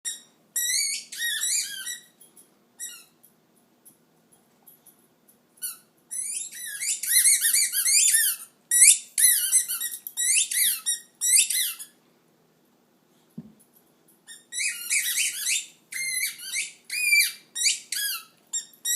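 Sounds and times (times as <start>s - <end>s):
rubber squeaky toy squeaking: 0.1s - 2.1s, 2.8s - 3.2s, 5.6s - 11.9s, 14.3s - 18.9s.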